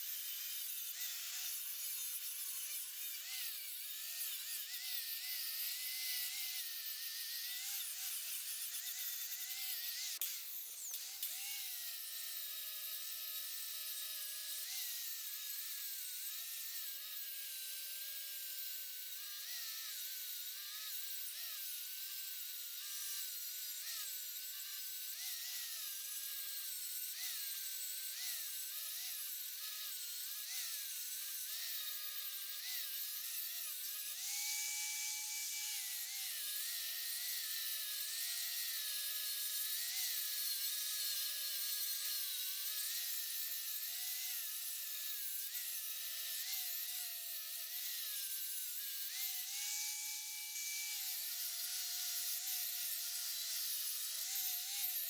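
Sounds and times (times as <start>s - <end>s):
grinder whining on metal: 0.0s - 55.0s.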